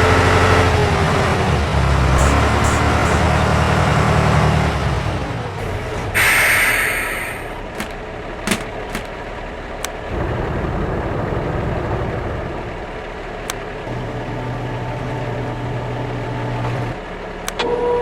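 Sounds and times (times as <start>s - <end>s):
heavy vehicle engine rumbling: 0.0s - 18.0s
air hissing: 6.2s - 9.1s.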